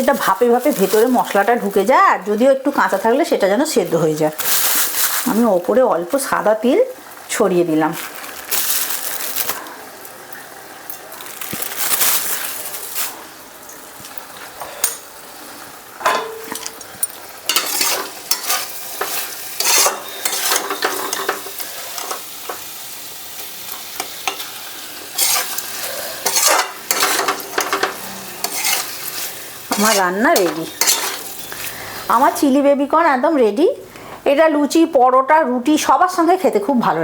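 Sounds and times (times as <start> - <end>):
low sizzle from pan: 0.0 - 34.3
spatula scraping a pan: 17.5 - 22.2, 25.1 - 31.8.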